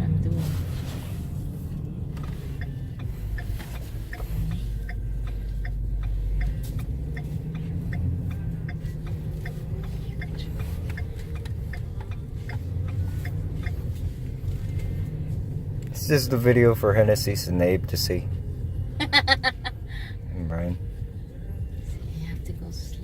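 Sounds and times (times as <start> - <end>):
road noise: 0.0 - 23.0
truck engine rumble: 0.0 - 23.0
turn signal clicking: 1.6 - 16.0.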